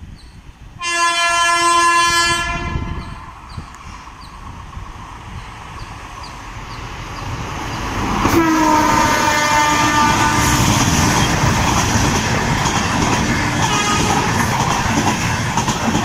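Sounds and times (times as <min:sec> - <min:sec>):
train rumbling past: 0:00.2 - 0:16.0
locomotive horn blaring: 0:00.8 - 0:03.2, 0:08.3 - 0:11.0, 0:13.4 - 0:14.5.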